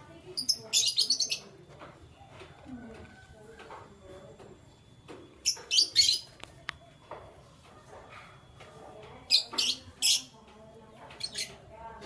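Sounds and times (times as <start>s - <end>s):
canary chirping: 0.2s - 1.6s, 5.3s - 11.8s.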